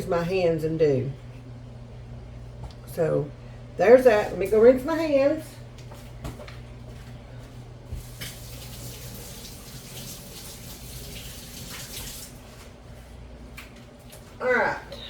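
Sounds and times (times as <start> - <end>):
faucet water running: 7.9 - 12.6.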